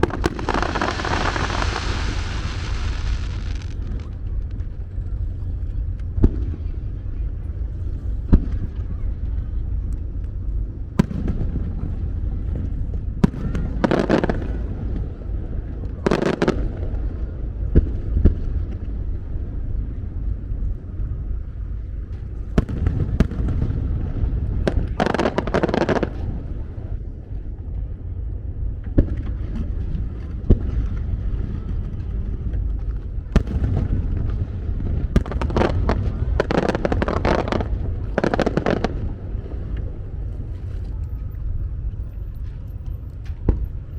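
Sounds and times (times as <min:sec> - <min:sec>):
firework bangs: 0:00.0 - 0:04.9, 0:11.0 - 0:18.8, 0:22.2 - 0:27.0, 0:33.2 - 0:40.0
firework crackling bursts: 0:00.0 - 0:05.3, 0:22.4 - 0:26.9, 0:33.4 - 0:39.6
low rumble: 0:00.0 - 0:43.9.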